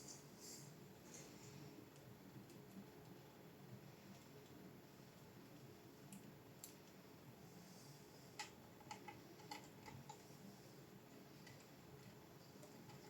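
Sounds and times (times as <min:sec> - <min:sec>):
faint light clicks: 0:06.1 - 0:07.0.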